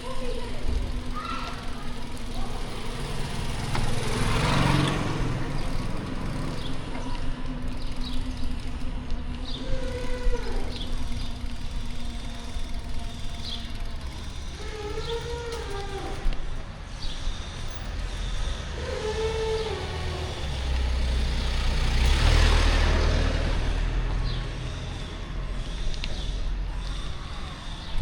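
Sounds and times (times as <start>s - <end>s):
city street traffic: 0.0s - 28.0s
steady engine hum: 0.0s - 28.0s
vehicle passing close by: 2.2s - 13.2s, 17.6s - 27.1s.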